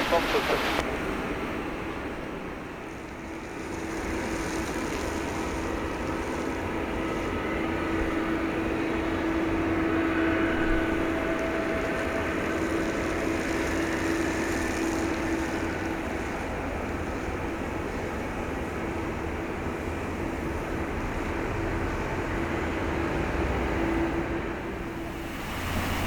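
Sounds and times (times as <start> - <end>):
faint steady hum: 0.0 - 1.0
distant jet engines: 0.0 - 26.0.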